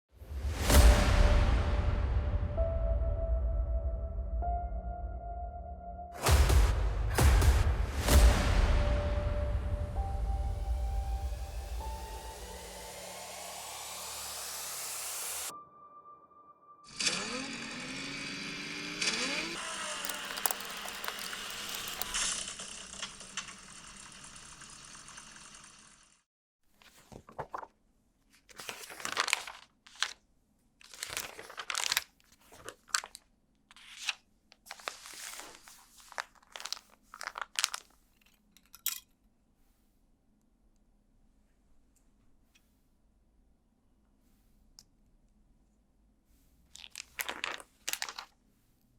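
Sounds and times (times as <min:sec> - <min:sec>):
plastic bags crinkling and tearing: 0:20.0 - 0:22.2, 0:28.5 - 0:30.2, 0:30.8 - 0:33.2, 0:33.8 - 0:38.2, 0:46.8 - 0:48.4.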